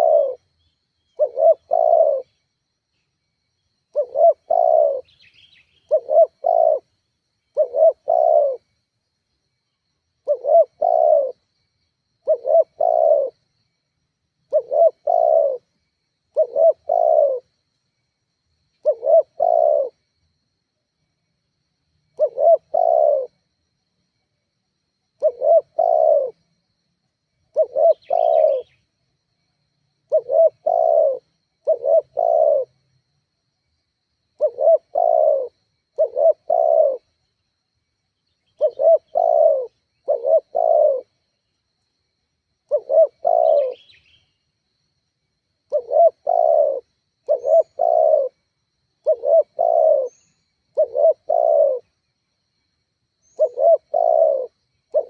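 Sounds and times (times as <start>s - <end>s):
dove cooing: 0.0s - 0.5s, 1.1s - 2.4s, 3.9s - 6.9s, 7.5s - 8.7s, 10.2s - 11.4s, 12.2s - 13.4s, 14.5s - 15.7s, 16.3s - 17.5s, 18.8s - 20.0s, 22.1s - 23.4s, 25.2s - 26.5s, 27.5s - 28.8s, 30.0s - 32.8s, 34.4s - 37.2s, 38.4s - 41.2s, 42.7s - 44.2s, 45.7s - 48.4s, 49.0s - 52.0s, 53.2s - 55.0s
faint high bird chirp: 0.0s - 8.7s, 9.6s - 13.3s, 27.5s - 29.1s, 38.1s - 41.7s, 42.7s - 44.6s, 45.7s - 48.4s, 49.0s - 52.1s, 53.2s - 55.0s.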